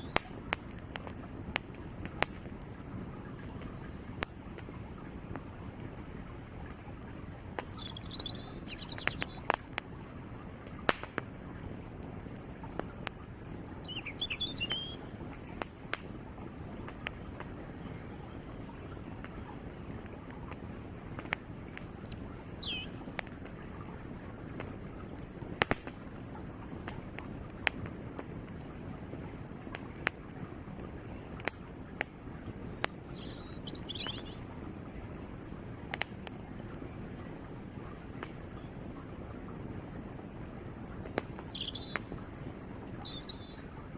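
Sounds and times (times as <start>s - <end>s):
small bird chirping: 0.0s - 0.2s, 7.7s - 9.5s, 13.8s - 16.0s, 17.6s - 18.7s, 21.8s - 23.8s, 32.4s - 34.5s, 41.1s - 43.6s
campfire crackling and popping: 0.0s - 43.9s
creek flowing: 0.0s - 43.9s.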